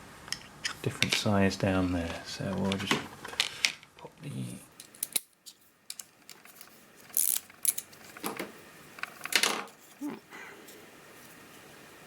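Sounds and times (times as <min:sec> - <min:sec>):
small metal parts clicking and rattling: 0:04.8 - 0:08.4.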